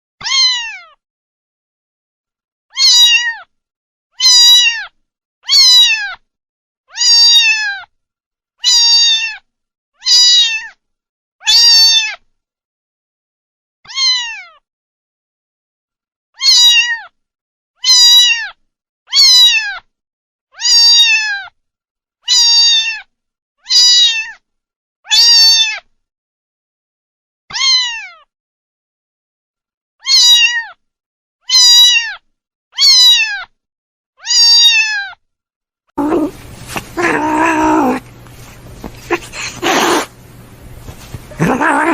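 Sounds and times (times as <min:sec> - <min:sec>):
kitten meowing: 0:00.2 - 0:00.8, 0:02.8 - 0:03.4, 0:04.2 - 0:04.9, 0:05.5 - 0:06.2, 0:06.9 - 0:07.8, 0:08.6 - 0:09.4, 0:10.0 - 0:10.7, 0:13.9 - 0:14.4, 0:16.4 - 0:17.0, 0:17.8 - 0:18.5, 0:19.1 - 0:19.8, 0:20.6 - 0:21.4, 0:22.3 - 0:23.0, 0:23.7 - 0:24.3, 0:27.5 - 0:28.1, 0:30.0 - 0:30.6, 0:31.5 - 0:32.2, 0:32.8 - 0:33.4, 0:34.2 - 0:35.1, 0:36.0 - 0:41.9.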